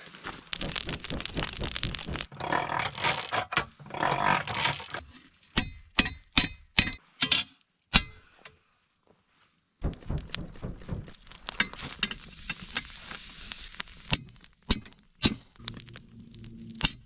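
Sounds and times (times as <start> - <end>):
rasping metal scrapes: 0.7 - 5.4.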